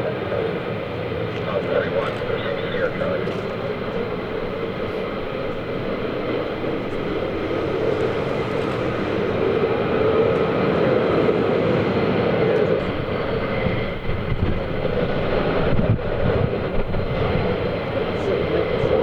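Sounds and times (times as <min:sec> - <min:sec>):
jet engines rushing: 0:00.0 - 0:19.0.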